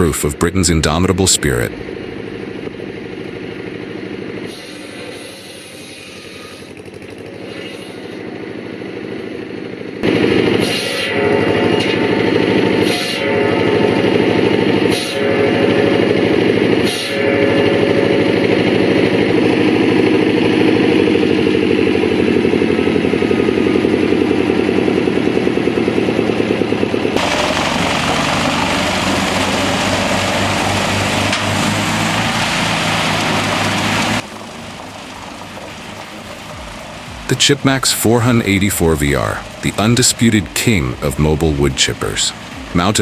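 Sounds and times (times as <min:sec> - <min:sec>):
wood-processing machinery running: 0:00.0 - 0:43.0
harsh hissing grind: 0:04.5 - 0:06.7, 0:26.2 - 0:41.3.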